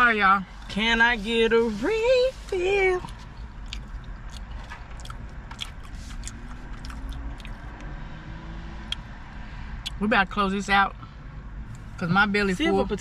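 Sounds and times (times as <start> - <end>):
low steady hum: 0.0 - 8.2
person chewing food: 3.0 - 7.9.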